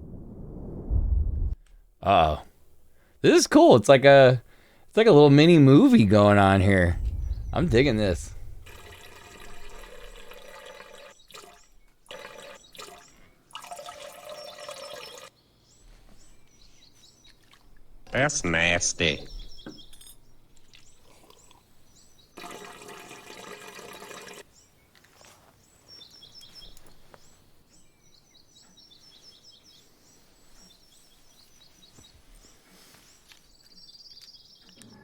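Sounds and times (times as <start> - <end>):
burst of rushing noise: 0.0 - 1.6, 6.2 - 10.3
small birds chirping: 2.0 - 22.5, 23.9 - 35.0.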